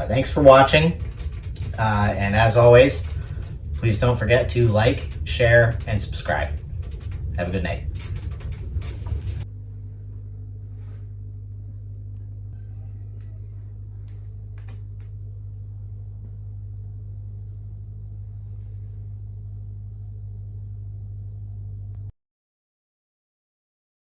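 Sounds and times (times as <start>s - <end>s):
faint clicks: 0.0s - 9.4s
low electrical hum: 0.0s - 22.1s.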